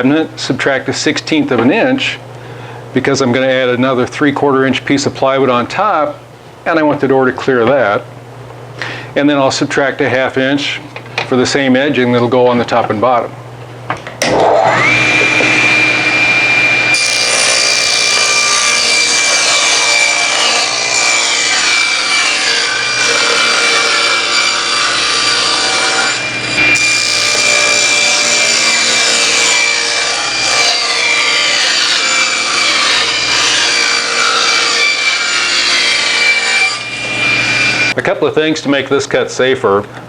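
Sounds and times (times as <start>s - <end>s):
power saw cutting plywood: 14.2s - 38.0s.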